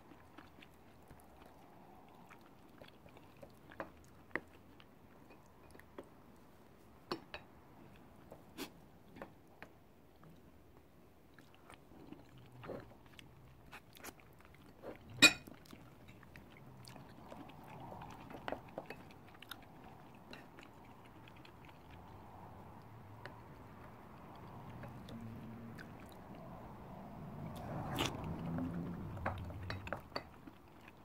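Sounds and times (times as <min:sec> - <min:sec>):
chewing and mouth sounds: 0:00.0 - 0:06.8, 0:07.8 - 0:31.0.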